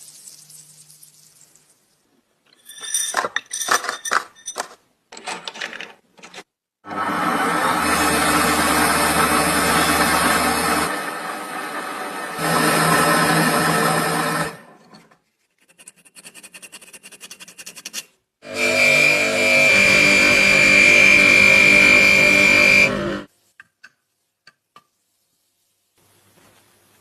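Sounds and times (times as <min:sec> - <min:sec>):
generator whirring with high whine: 0:18.5 - 0:23.3.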